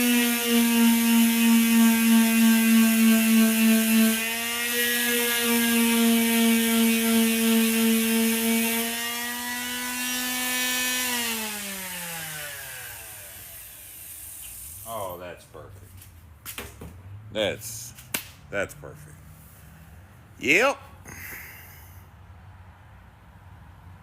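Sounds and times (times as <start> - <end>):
electric power tool running: 0.0 - 14.9.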